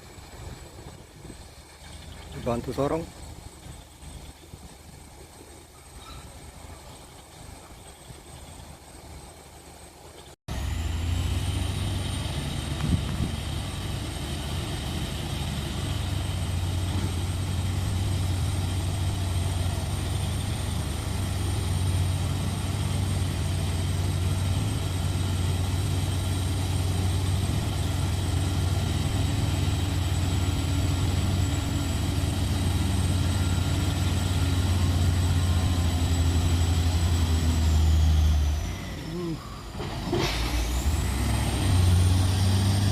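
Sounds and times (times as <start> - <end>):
heavy diesel truck engine straining: 10.5 - 42.9.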